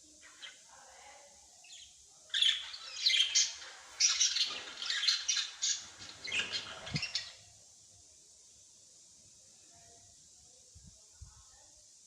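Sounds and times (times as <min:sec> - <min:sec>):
small birds calling: 0:01.6 - 0:07.5.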